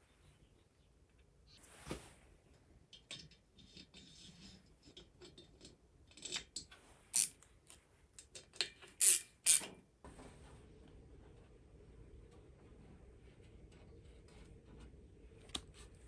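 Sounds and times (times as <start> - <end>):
metal parts and tools clicking: 2.9 - 7.4, 8.2 - 9.7.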